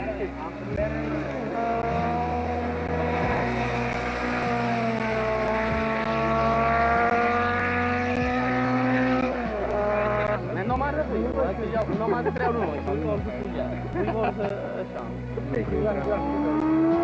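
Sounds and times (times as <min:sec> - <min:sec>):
race car engine at high revs: 0:00.0 - 0:11.1, 0:15.6 - 0:17.0.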